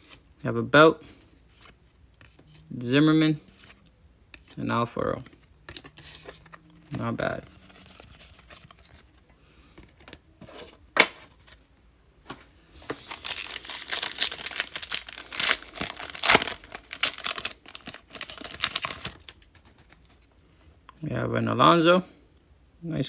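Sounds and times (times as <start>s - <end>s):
foil wrapper tearing and crinkling: 12.8s - 20.0s.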